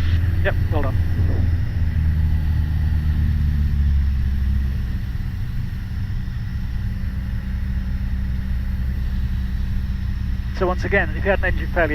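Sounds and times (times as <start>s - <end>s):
airplane engine and propeller droning: 0.0s - 11.9s.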